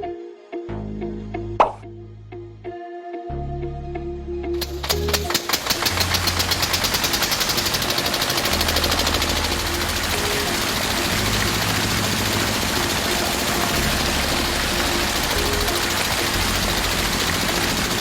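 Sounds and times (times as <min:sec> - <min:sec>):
background music: 0:00.0 - 0:18.0
model tractor engine running fast: 0:04.6 - 0:18.0.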